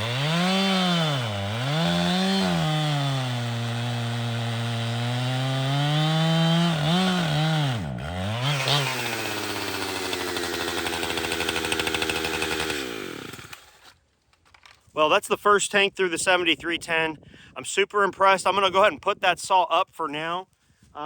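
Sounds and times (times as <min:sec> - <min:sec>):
chainsaw running: 0:00.0 - 0:14.0.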